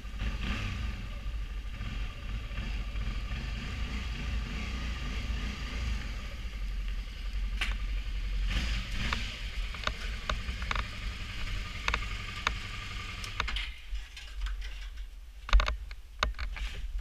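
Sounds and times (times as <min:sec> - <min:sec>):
motorcycle engine idling: 0:00.0 - 0:03.8, 0:04.4 - 0:13.5.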